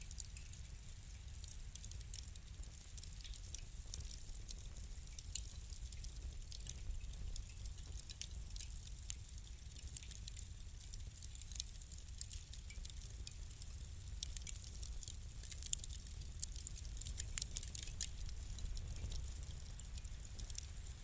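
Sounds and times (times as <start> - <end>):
low rumble of fire: 0.0 - 21.0
wood fire crackling: 0.0 - 21.0.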